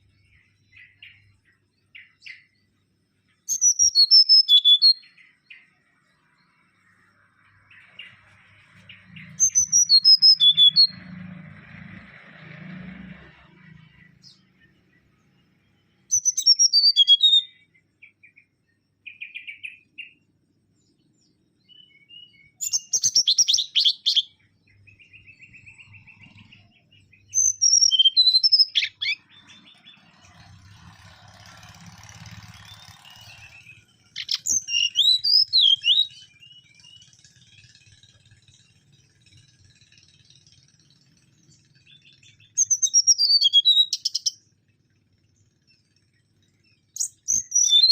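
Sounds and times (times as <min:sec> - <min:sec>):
faint bird trill: 0:00.0 - 0:11.1, 0:13.6 - 0:47.9
bird singing rapid high notes: 0:03.3 - 0:11.2, 0:13.6 - 0:20.3, 0:21.6 - 0:38.4, 0:41.5 - 0:44.5, 0:46.8 - 0:47.9.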